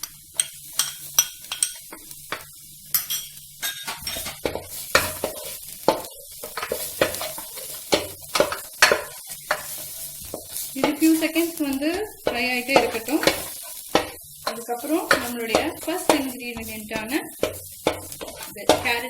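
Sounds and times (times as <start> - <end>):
light frying sizzle: 0.0 - 19.0
spatula scraping in a pan: 0.3 - 19.0.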